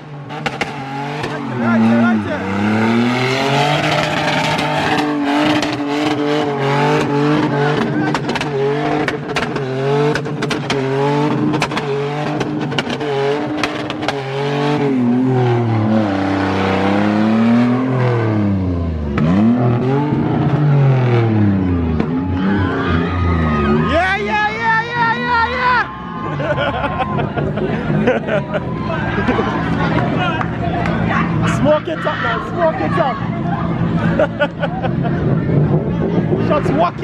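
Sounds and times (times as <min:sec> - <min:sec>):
car engine revving hard: 0:00.0 - 0:24.4
exhaust pops and crackles: 0:00.4 - 0:01.4, 0:07.0 - 0:14.3.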